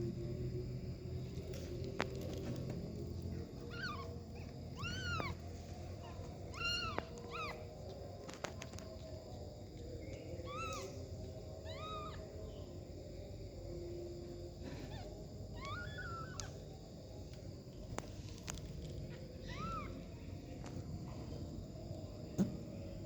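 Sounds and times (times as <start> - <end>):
low steady background noise: 0.0 - 23.0
kittens mewing: 3.6 - 5.4, 6.0 - 7.7, 10.5 - 10.9, 11.7 - 12.2, 14.8 - 16.5, 19.4 - 20.0.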